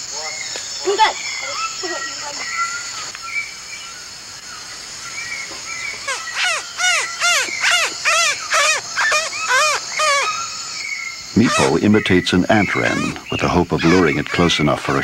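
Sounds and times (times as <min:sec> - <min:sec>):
crickets chirping: 0:00.0 - 0:15.0
boy imitating bird call: 0:06.1 - 0:10.4, 0:11.4 - 0:11.8.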